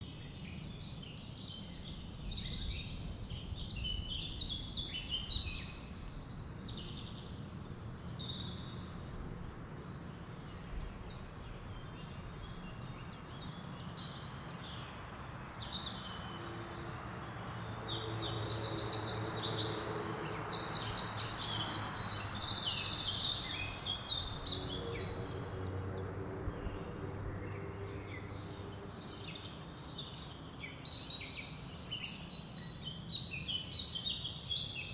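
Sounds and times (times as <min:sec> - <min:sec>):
songbirds singing: 0:00.0 - 0:34.9.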